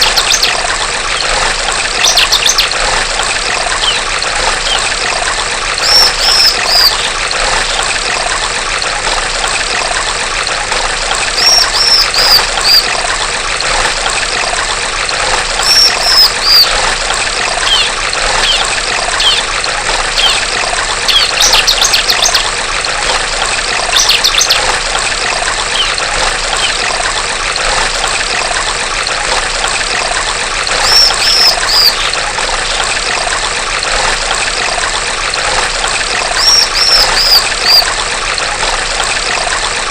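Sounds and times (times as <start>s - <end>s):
bird rattling trills: 0.0s - 5.0s, 5.8s - 8.0s, 11.4s - 13.0s, 15.6s - 16.9s, 17.5s - 22.5s, 23.9s - 24.7s, 25.6s - 27.0s, 30.7s - 32.9s, 36.2s - 37.9s
stream trickling: 0.0s - 39.9s
bird calling high falling notes: 5.8s - 7.1s, 17.6s - 19.5s, 25.7s - 26.8s, 36.4s - 37.9s.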